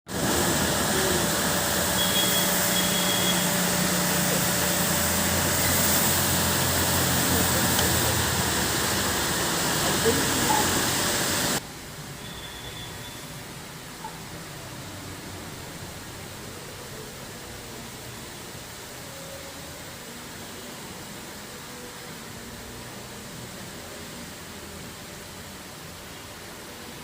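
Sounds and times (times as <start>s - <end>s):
high-pressure water spray: 0.1s - 11.6s.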